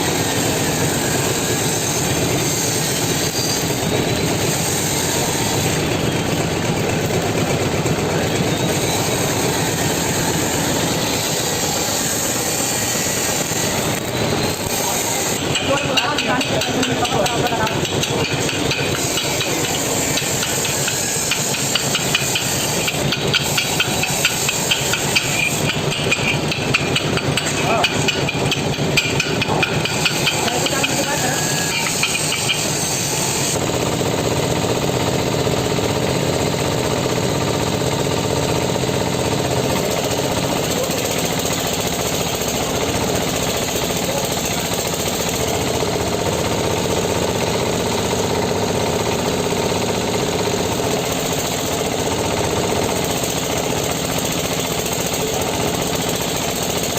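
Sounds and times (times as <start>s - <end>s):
tractor engine running: 5.2s - 56.9s
fast metallic rattle: 13.4s - 34.8s.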